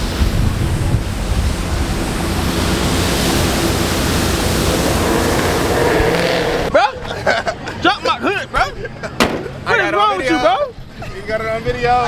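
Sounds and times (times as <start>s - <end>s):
wind noise on microphone: 0.0s - 6.7s
car engines running: 0.0s - 11.6s.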